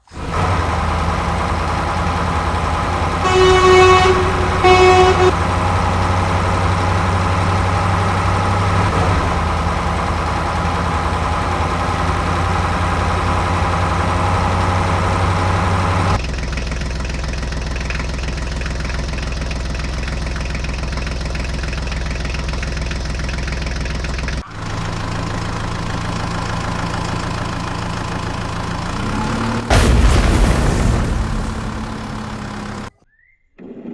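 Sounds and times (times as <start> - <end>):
lower-sounding engine: 0.0 - 32.9
vehicle engine running: 0.0 - 32.9
horn honks: 2.6 - 8.5.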